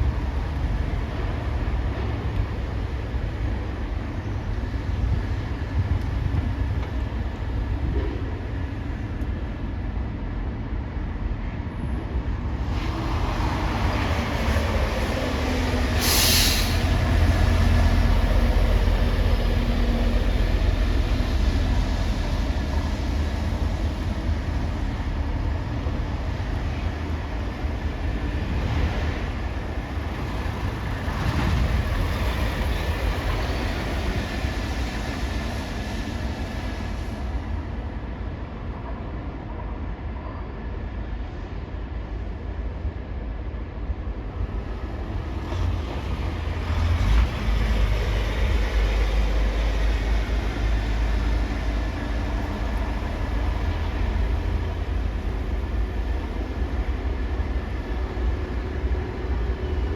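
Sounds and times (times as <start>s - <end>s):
heavy vehicles rumbling: 11.6s - 38.6s, 41.2s - 59.9s
sharp air hiss: 15.9s - 17.2s.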